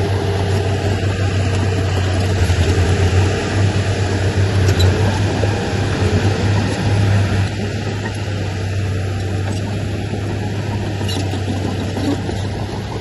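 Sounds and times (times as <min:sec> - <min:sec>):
heavy machinery diesel engine running: 0:00.0 - 0:13.0.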